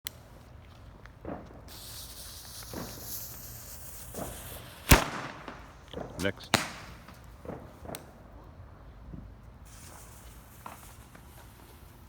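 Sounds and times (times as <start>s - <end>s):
firework bang: 1.1s - 8.4s
firework hissing: 1.2s - 8.3s, 9.6s - 12.0s.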